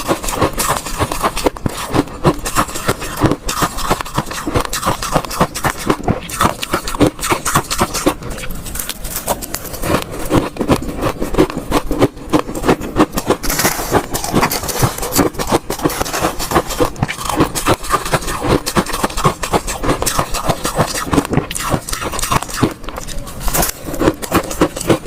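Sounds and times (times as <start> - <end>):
ice cubes being chewed: 0.0 - 25.0.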